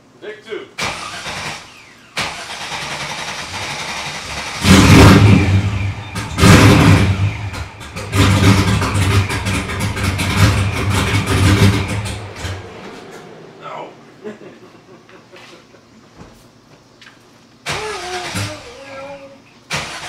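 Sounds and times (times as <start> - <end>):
car engine revving: 0.8 - 15.0.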